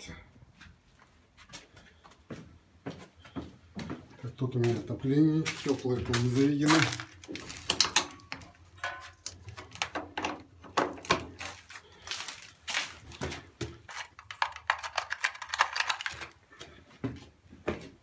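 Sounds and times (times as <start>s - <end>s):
irregular clicks and knocks: 5.5s - 16.4s.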